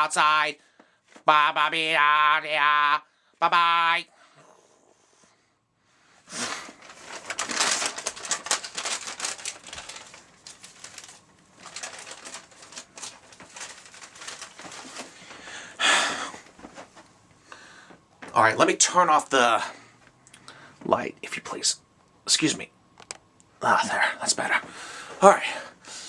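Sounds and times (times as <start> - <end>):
paper rustling and crinkling: 6.4 - 15.5, 16.4 - 17.1.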